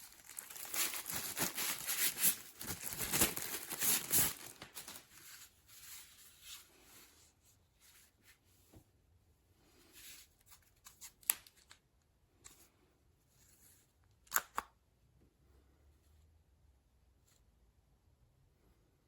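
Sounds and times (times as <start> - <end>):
handling rustling: 0.0 - 7.1.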